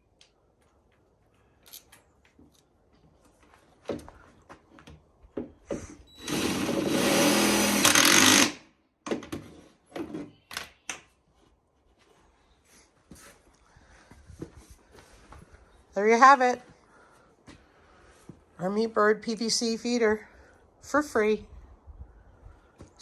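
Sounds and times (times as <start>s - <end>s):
power drill driving screw: 6.1s - 8.7s.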